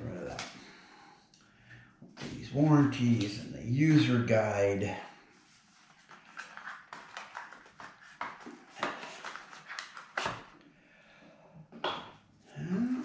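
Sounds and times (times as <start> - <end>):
packaging rustling: 5.8 - 10.5.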